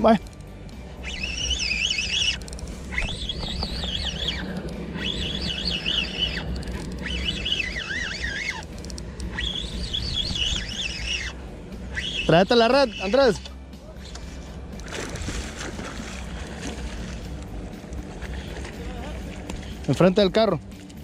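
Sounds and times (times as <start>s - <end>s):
steady low hum: 0.0s - 21.0s
bird warbling: 1.0s - 13.5s.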